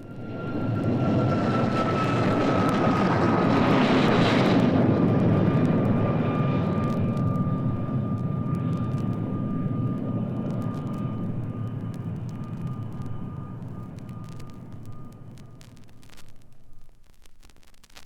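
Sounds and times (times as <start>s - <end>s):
steady whine: 0.0s - 18.0s
aircraft flying past: 0.1s - 11.9s.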